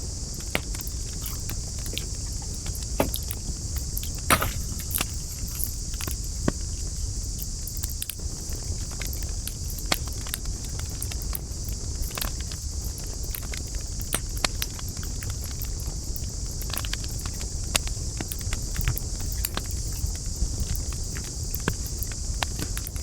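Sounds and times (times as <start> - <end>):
campfire crackling and popping: 0.3 - 6.5.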